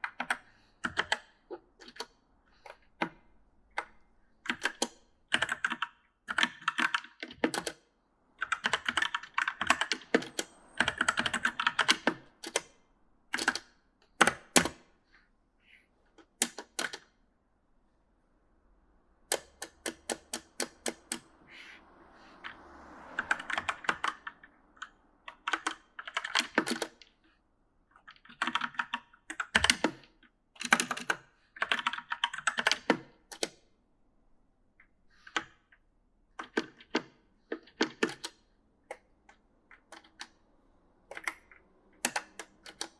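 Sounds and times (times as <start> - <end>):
mechanical keyboard key clicks: 28.1 - 33.6.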